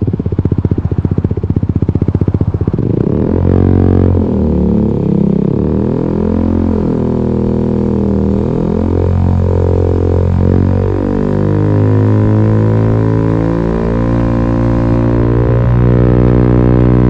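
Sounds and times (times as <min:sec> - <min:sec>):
scooter engine droning: 0:00.0 - 0:17.0.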